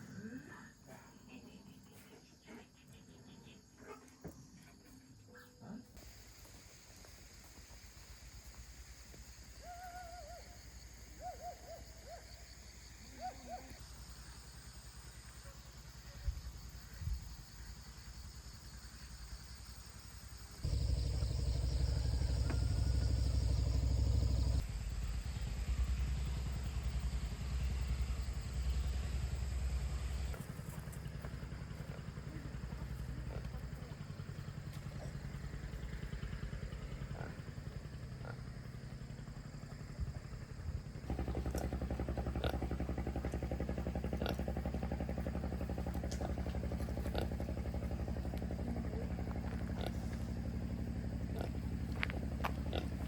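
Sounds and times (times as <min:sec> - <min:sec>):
motorbike engine running: 0:20.6 - 0:53.0.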